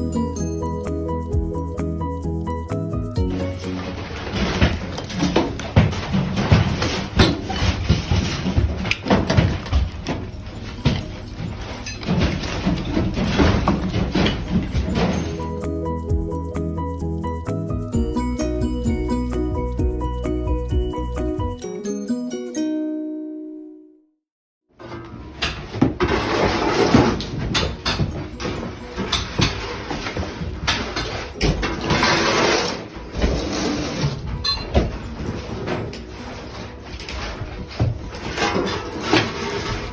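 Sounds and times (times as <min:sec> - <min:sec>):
debris scraping: 0:03.2 - 0:15.7, 0:24.8 - 0:39.9
demolition thuds and crashes: 0:03.2 - 0:16.2, 0:24.8 - 0:39.9.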